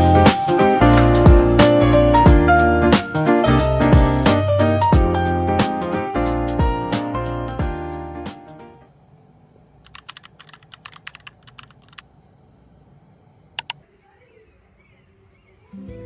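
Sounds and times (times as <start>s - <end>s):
loud clicks: 13.6s - 13.8s.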